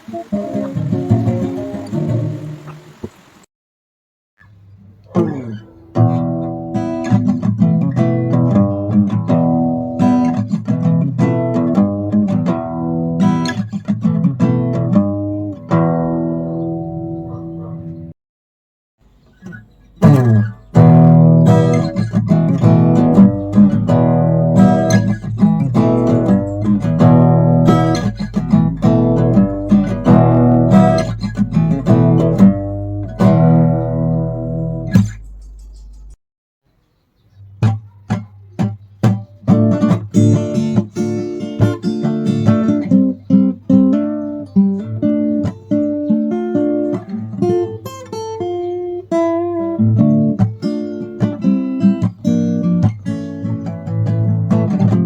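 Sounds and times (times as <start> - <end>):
acoustic guitar strumming chords: 0.0 - 3.4, 5.1 - 18.1, 19.4 - 36.2, 37.6 - 55.0.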